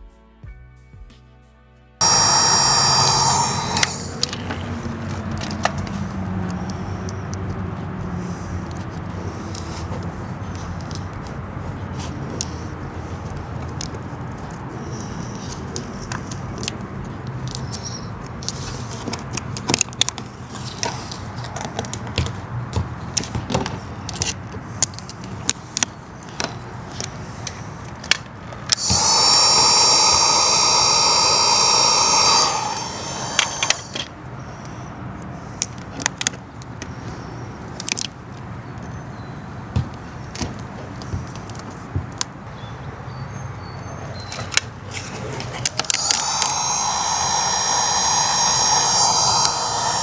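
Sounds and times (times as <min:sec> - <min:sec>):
small motor whining: 0:02.0 - 0:05.6, 0:28.8 - 0:34.1, 0:45.2 - 0:50.0.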